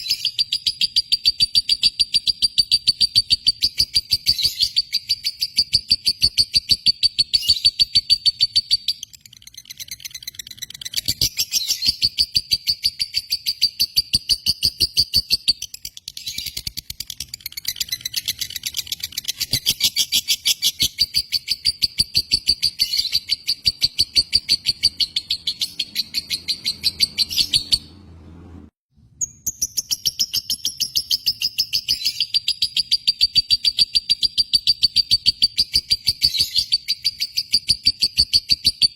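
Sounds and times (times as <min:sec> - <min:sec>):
lovebird chirping: 0:00.0 - 0:28.0, 0:29.2 - 0:38.9.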